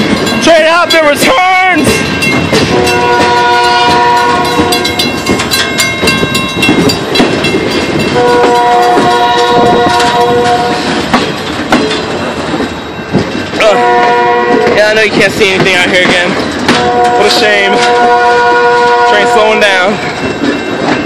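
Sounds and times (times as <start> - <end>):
train wheels rattling and clanking: 0.0 - 21.0
train horn chord: 2.7 - 5.1, 8.1 - 10.9, 13.7 - 14.8, 16.7 - 19.7.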